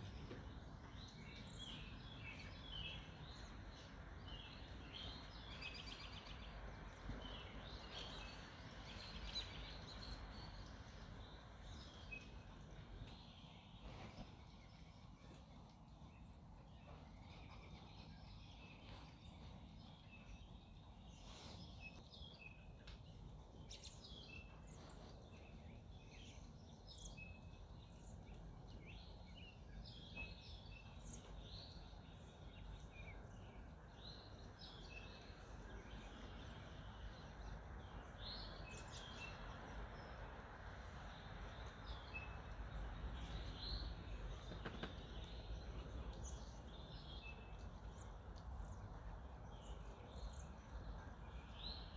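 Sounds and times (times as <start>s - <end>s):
songbirds chirping: 0.0s - 51.9s
low background rumble: 22.5s - 51.9s.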